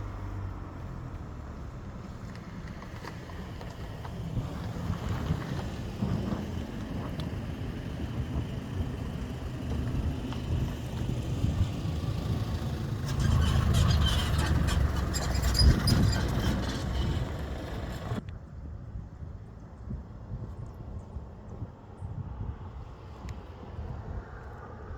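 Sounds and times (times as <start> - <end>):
vehicle engine rumbling: 0.0 - 18.4.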